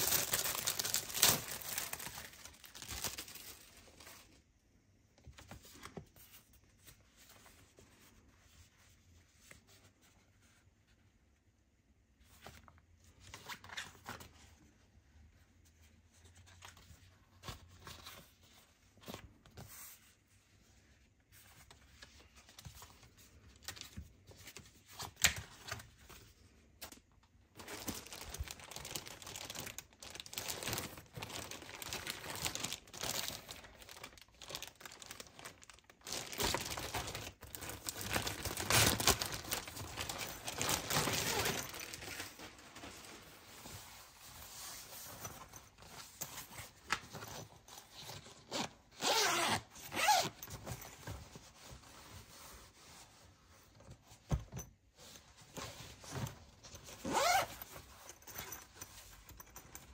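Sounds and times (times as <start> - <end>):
wrapping tearing and crinkling: 0.0 - 4.2, 27.5 - 43.2.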